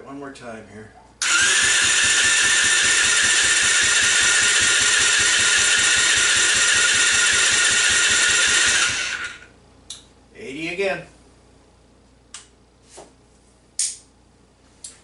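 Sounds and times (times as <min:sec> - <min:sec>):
engine cranking by starter: 0:01.2 - 0:09.4.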